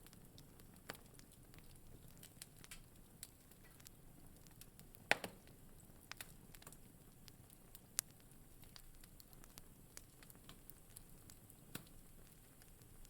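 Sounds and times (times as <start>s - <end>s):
sharp fire pops: 0.0s - 13.0s
wood fire crackling: 0.0s - 13.0s.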